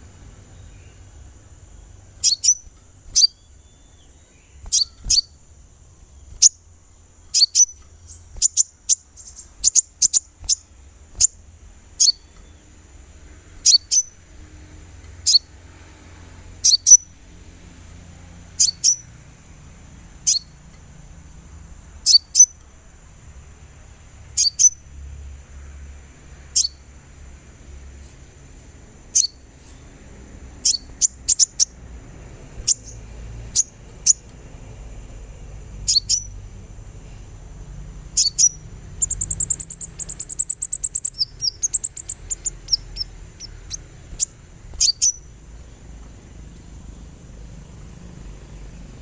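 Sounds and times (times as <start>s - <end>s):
sunbird high sliding chirps: 0.0s - 17.2s, 18.4s - 19.2s, 20.2s - 20.7s, 22.0s - 22.7s, 24.3s - 24.9s, 29.0s - 34.4s, 35.7s - 46.8s.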